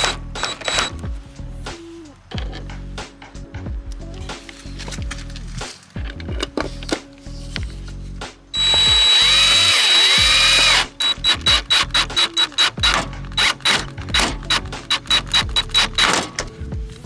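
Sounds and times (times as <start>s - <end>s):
power drill motor running: 0.0s - 1.0s, 8.6s - 16.4s
background music with a beat: 0.0s - 17.0s.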